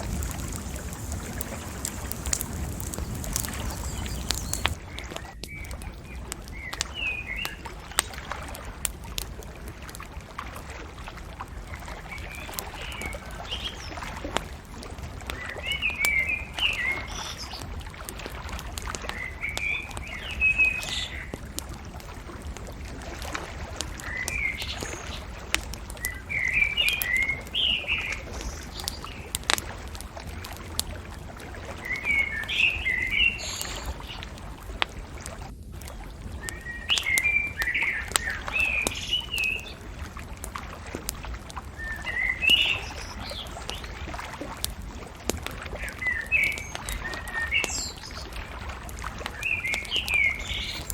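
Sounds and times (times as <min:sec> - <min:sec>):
small birds chirping: 0:00.0 - 0:07.6, 0:26.0 - 0:29.4, 0:31.8 - 0:34.3, 0:41.8 - 0:43.9, 0:45.7 - 0:48.4, 0:49.2 - 0:50.9
bonfire crackling: 0:00.0 - 0:50.9.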